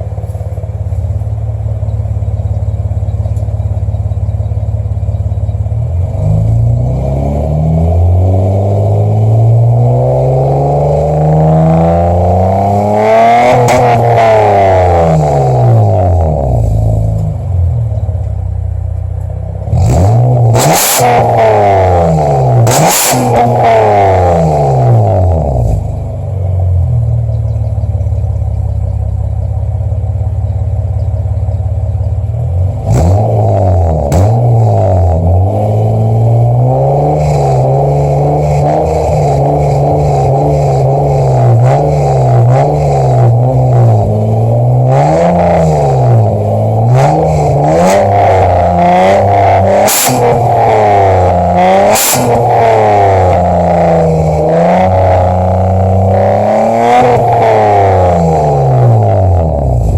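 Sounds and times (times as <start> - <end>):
car engine idling and revving: 0.0 - 59.9
exhaust cracks: 0.0 - 59.9.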